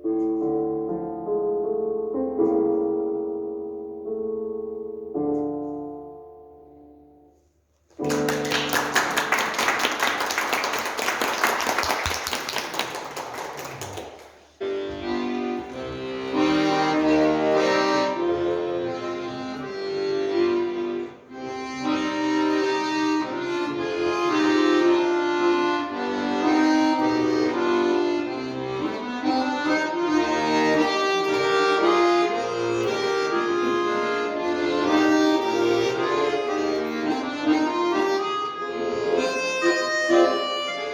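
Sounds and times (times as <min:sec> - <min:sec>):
accordion playing a tune: 0:04.7 - 0:40.9
audience applause: 0:08.0 - 0:14.5.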